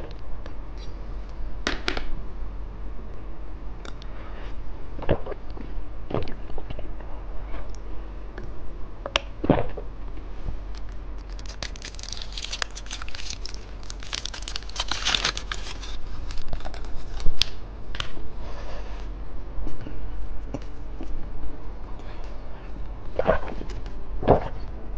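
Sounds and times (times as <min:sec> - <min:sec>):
plastic wrapper crinkling: 0:10.7 - 0:17.6.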